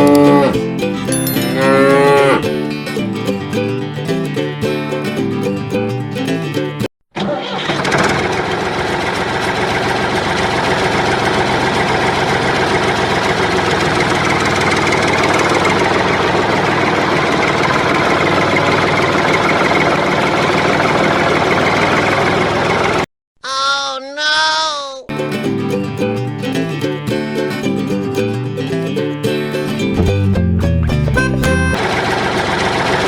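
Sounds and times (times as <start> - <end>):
engine idling with knocking: 7.7 - 23.0, 31.8 - 33.0.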